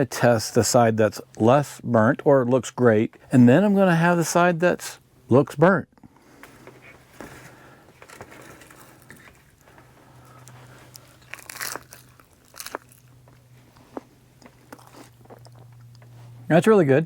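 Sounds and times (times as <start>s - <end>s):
person chewing crispy food: 8.6s - 16.1s
crisp crunches: 10.2s - 16.0s.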